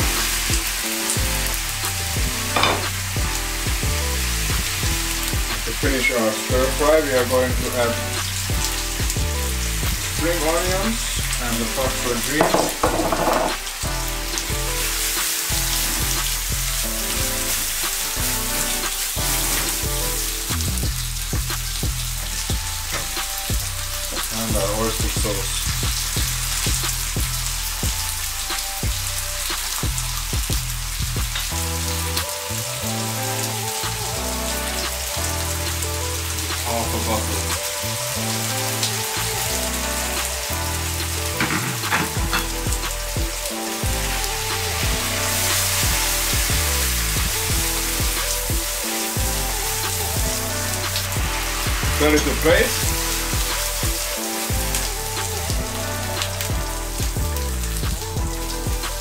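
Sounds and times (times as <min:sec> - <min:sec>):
background music: 0:00.0 - 0:59.0
fish frying in a pan: 0:00.0 - 0:59.0
vegetables sizzling in a wok: 0:00.0 - 0:59.0.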